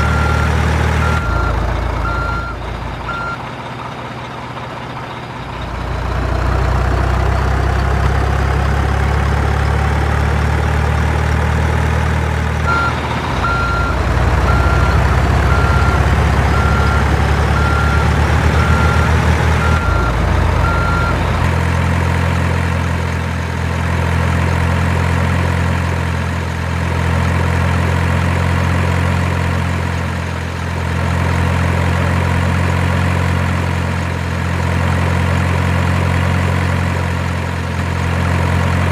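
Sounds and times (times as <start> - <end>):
reversing beeper: 0.0 - 3.4, 12.7 - 21.2
truck engine drone: 0.0 - 38.9.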